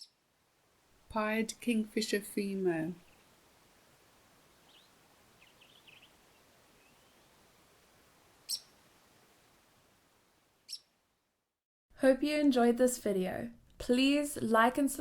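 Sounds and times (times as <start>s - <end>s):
sharp high-pitched bird calls: 0.0s - 0.2s, 4.7s - 6.2s, 8.4s - 8.8s, 10.7s - 10.9s
faint outdoor hiss: 0.0s - 15.0s
bird chirps and twitters: 4.7s - 7.3s, 8.4s - 8.7s, 10.7s - 10.9s.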